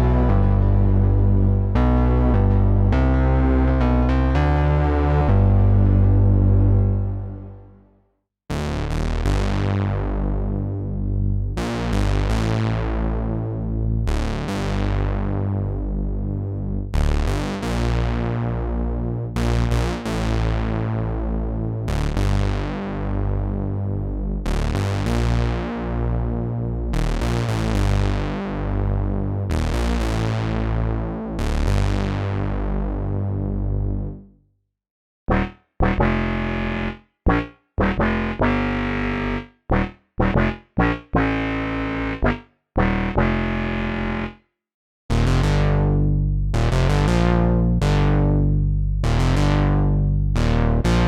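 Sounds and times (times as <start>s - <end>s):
synthesizer bass line: 0.0s - 7.9s, 8.5s - 23.4s, 35.3s - 44.4s, 45.1s - 51.0s
bright synthesizer notes: 35.3s - 44.4s.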